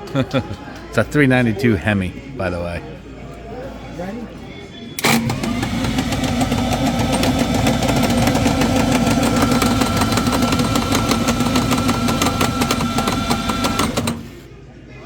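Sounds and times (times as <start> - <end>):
dragster engines running loud: 5.0 - 14.2.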